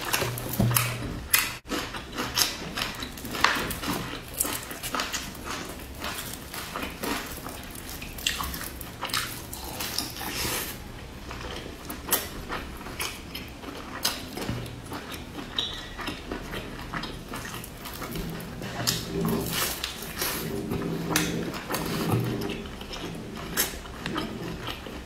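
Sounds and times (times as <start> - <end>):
biting and chewing: 0.0 - 25.0.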